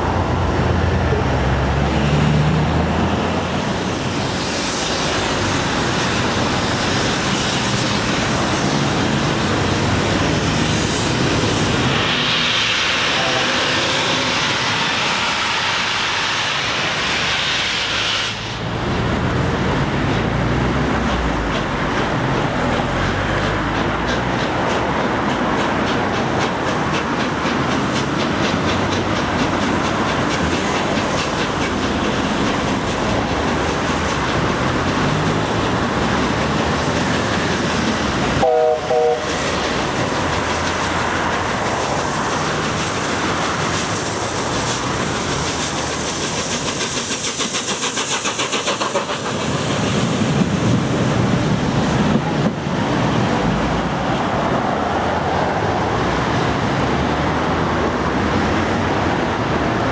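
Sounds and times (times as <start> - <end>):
steam locomotive running past: 0.0 - 59.9
train whistle blast: 13.0 - 14.4, 38.4 - 39.4
wheels clicking over rail joints: 18.7 - 38.4.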